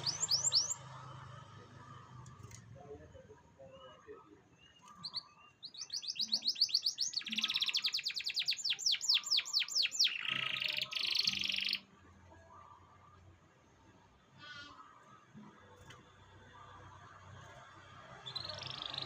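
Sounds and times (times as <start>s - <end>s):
canary singing: 0.0s - 1.4s, 4.6s - 11.9s, 17.6s - 19.0s.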